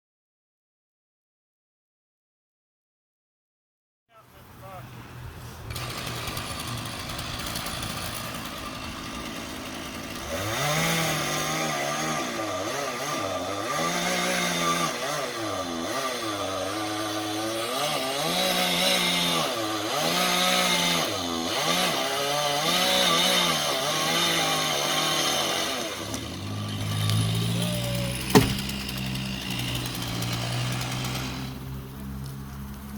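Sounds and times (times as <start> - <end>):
chainsaw engine revving: 5.7 - 31.9.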